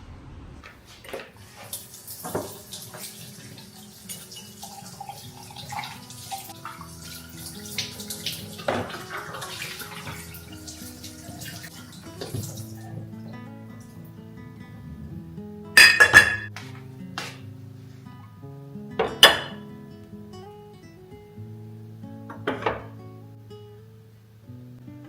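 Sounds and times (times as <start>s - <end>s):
tap water running into sink: 1.0s - 13.1s
soft music: 1.4s - 25.0s
knocks and clinks: 15.8s - 16.6s.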